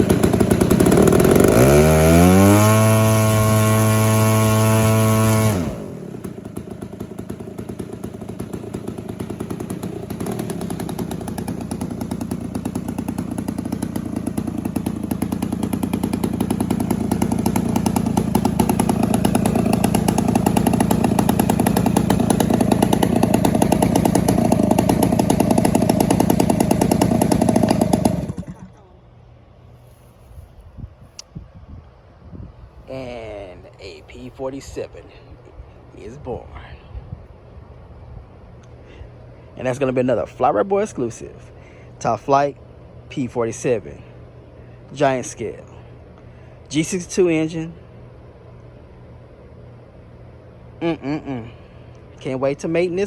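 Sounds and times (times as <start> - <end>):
model airplane engine revving: 0.0 - 28.9.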